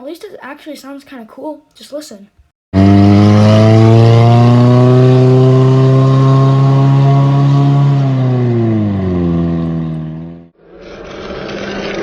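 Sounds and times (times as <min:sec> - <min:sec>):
loud car engine revving: 0:02.7 - 0:12.0.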